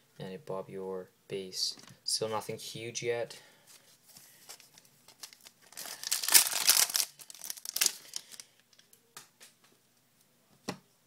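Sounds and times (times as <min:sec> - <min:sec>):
wrapper tearing and crinkling: 0:04.5 - 0:08.8.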